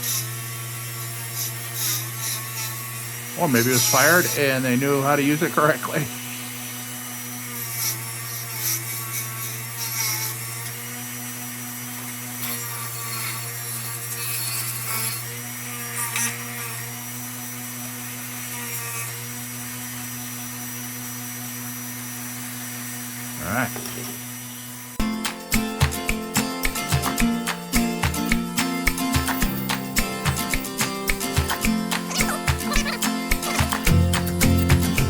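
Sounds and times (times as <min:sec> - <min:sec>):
rotary tool running: 0:00.0 - 0:35.0
tool bit scratching metal: 0:01.0 - 0:10.8, 0:12.4 - 0:16.9, 0:25.0 - 0:35.0.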